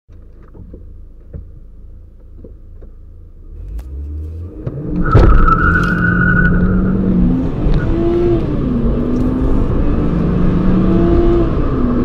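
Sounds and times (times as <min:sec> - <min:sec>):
car engine revving: 0:03.4 - 0:12.0.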